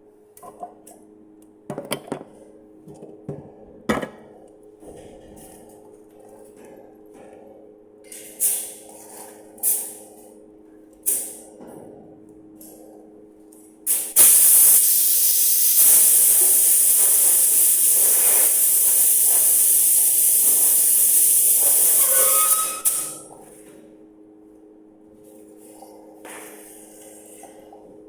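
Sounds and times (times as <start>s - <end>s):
air spray gun hissing: 13.9s - 23.2s.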